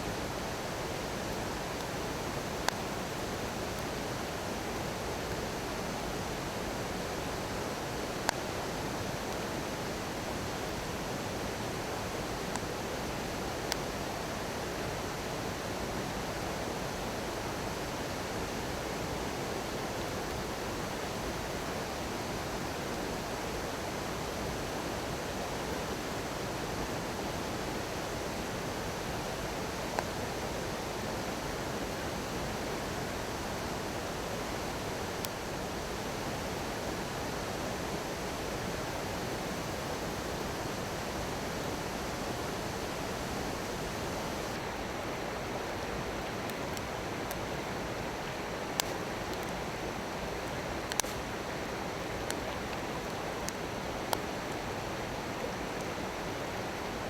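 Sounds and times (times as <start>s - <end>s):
stream babbling: 27.2s - 57.0s
bonfire crackling pops: 48.7s - 49.5s, 50.8s - 51.3s.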